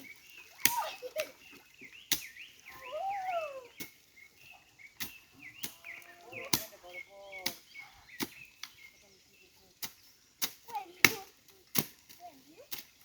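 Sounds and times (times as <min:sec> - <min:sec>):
birds chirping: 0:00.0 - 0:13.0
tool chopping vegetation: 0:02.0 - 0:02.5, 0:05.0 - 0:08.9, 0:09.8 - 0:13.0.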